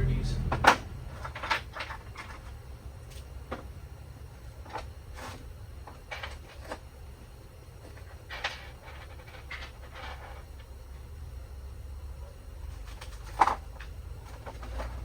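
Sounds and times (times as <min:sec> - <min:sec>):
low steady hum: 0:00.0 - 0:01.6.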